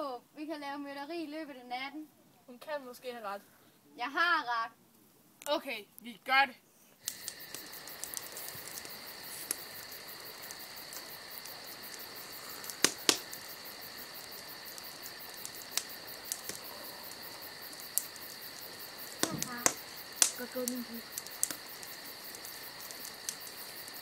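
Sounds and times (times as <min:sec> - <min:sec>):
sharp clicks: 0:07.0 - 0:09.6, 0:12.6 - 0:13.3, 0:17.9 - 0:23.6
crickets chirping: 0:07.0 - 0:24.0.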